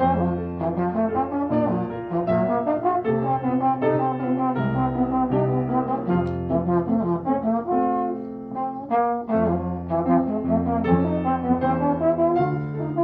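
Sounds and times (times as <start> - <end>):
brass ensemble playing: 0.0 - 13.0.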